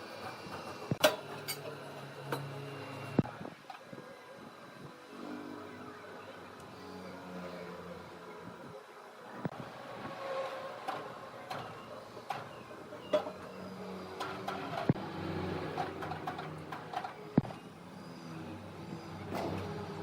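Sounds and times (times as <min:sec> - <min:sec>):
woodworking machinery humming: 0:00.0 - 0:20.0.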